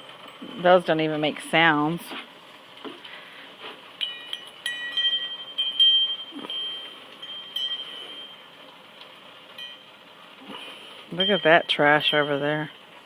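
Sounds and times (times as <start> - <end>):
wind chimes ringing: 0.0 - 1.3, 4.0 - 8.7, 9.5 - 10.1, 11.1 - 12.7.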